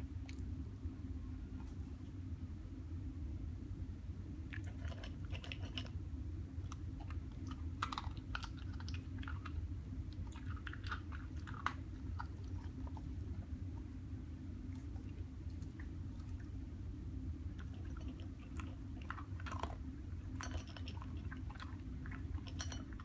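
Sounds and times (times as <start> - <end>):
dog crunching dry kibble: 4.5 - 6.0, 6.7 - 13.6, 17.5 - 23.0.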